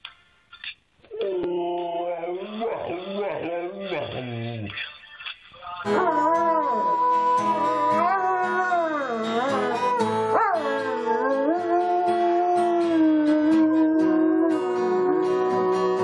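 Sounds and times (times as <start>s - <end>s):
dog howling: 1.1s - 4.6s, 5.9s - 16.0s
instrumental music: 5.8s - 16.0s.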